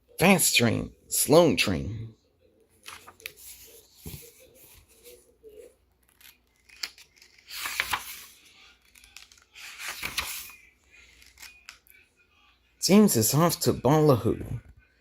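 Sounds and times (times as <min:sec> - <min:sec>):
book pages rustling: 0:02.7 - 0:12.0.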